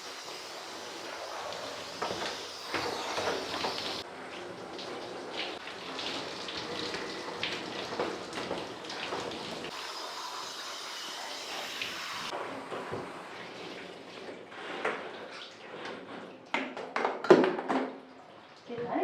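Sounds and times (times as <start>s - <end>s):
water running from a tap: 0.0s - 16.1s.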